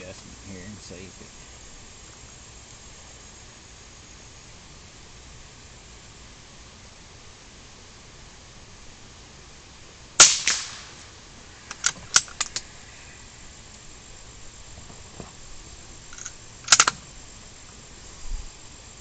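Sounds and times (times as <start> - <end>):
rifle shot: 10.2 - 11.1
rifle action clicking: 11.7 - 12.6, 16.2 - 17.0.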